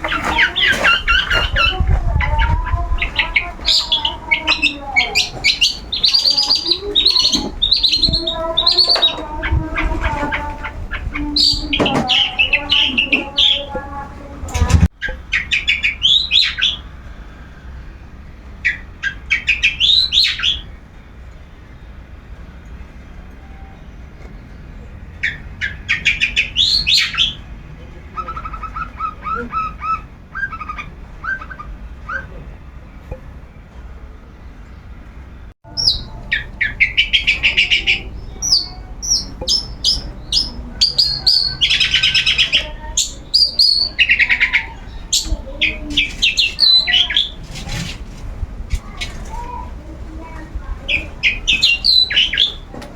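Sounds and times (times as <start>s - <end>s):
shrike chattering calls: 0.0s - 17.6s, 25.2s - 32.6s, 35.7s - 47.9s, 48.8s - 52.9s
shrike singing harsh notes: 35.6s - 45.0s.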